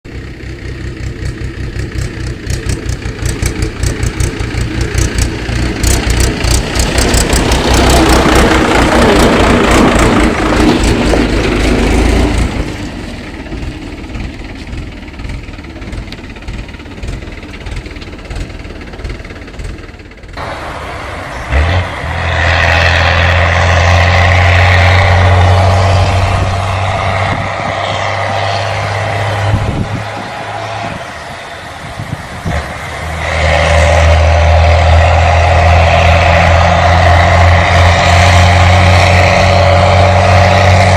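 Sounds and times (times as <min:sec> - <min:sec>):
vehicle engine running: 0:00.1 - 0:40.9.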